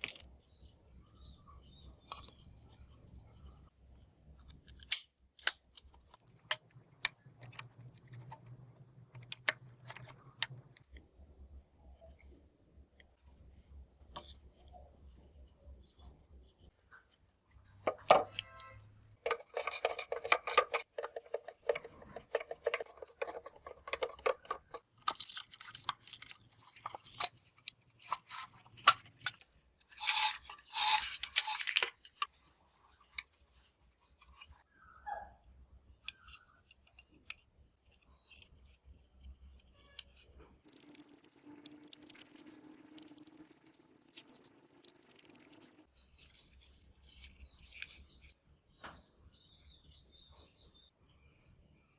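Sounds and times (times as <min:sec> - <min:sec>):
hands handling small parts: 0:00.0 - 0:00.4, 0:04.4 - 0:11.0, 0:17.8 - 0:34.6, 0:36.0 - 0:48.3.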